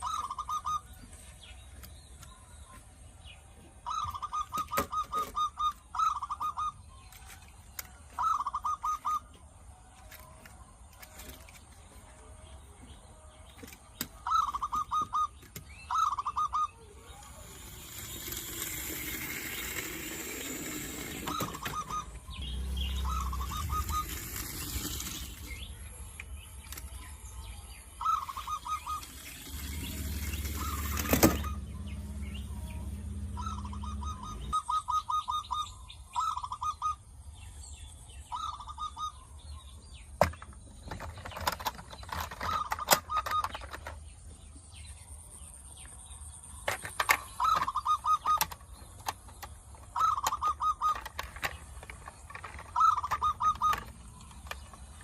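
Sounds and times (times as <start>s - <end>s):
bird chirping in rapid trills: 0.0s - 55.0s
low hum: 28.9s - 34.8s.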